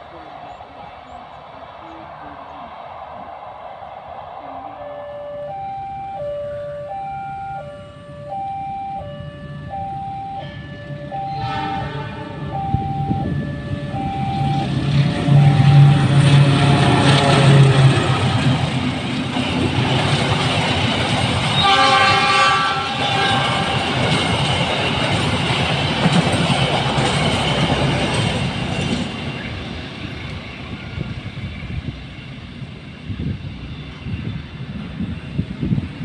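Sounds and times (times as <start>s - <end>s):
diesel locomotive engine drone: 0.0s - 36.0s
level-crossing alarm chiming: 4.8s - 16.8s
train horn blast: 10.4s - 13.4s, 14.0s - 18.6s, 21.6s - 24.0s.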